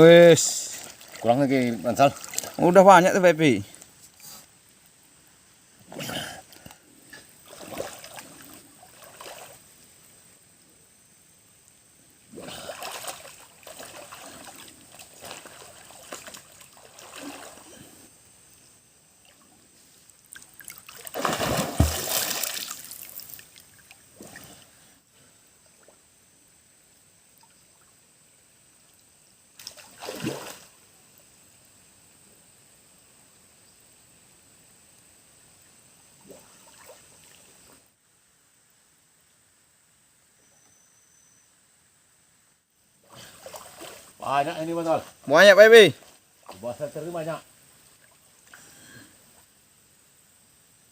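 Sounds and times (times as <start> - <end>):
water splashing in a river: 0.5 - 2.8, 7.4 - 9.8, 12.3 - 17.9, 20.1 - 24.6, 29.6 - 30.8, 36.2 - 37.7, 43.0 - 47.2.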